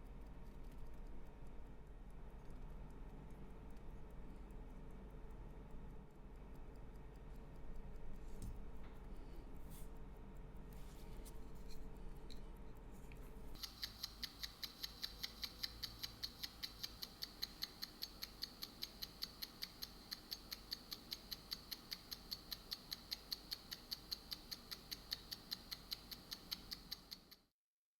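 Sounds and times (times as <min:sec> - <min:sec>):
wristwatch ticking: 0:13.5 - 0:27.5.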